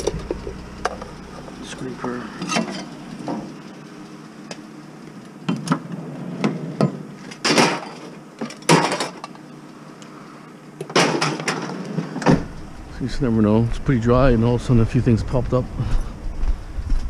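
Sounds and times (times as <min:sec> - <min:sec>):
scrap items knocking and clattering: 0:06.5 - 0:09.3, 0:10.9 - 0:12.4.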